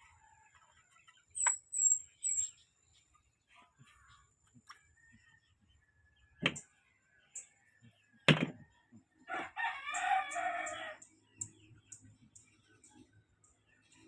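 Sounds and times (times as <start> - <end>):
rooster crowing: 9.3 - 11.0.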